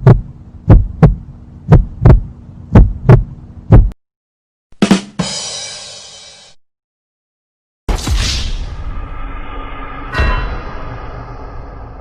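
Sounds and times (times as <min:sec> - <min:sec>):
heartbeat thumps: 0:00.0 - 0:04.0
steady low hum: 0:00.0 - 0:04.0
sharp hit: 0:07.9 - 0:12.0.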